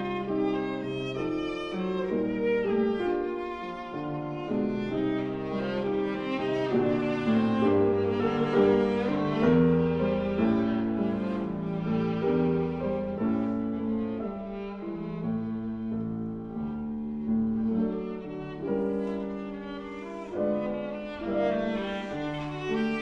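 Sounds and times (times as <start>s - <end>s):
piano accompaniment: 0.0s - 23.0s
viola playing bowed notes: 0.0s - 23.0s.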